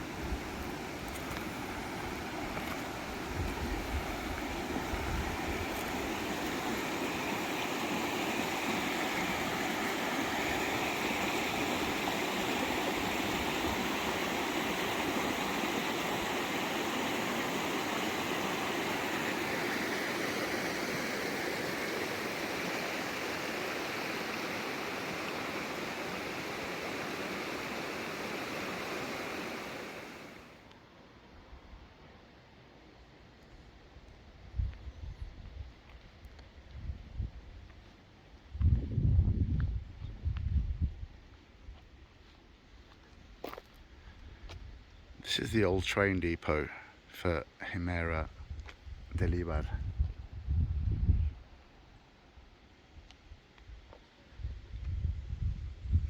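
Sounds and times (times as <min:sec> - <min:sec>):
river water rushing: 0:00.0 - 0:30.6.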